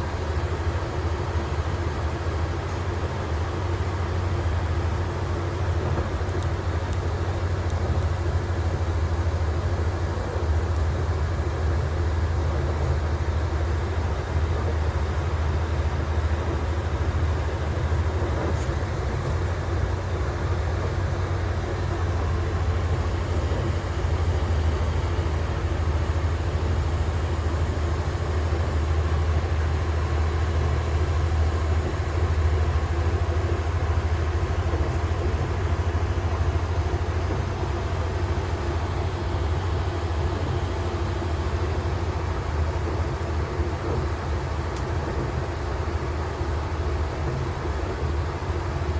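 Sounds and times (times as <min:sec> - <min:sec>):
train running: 0:00.0 - 0:48.9.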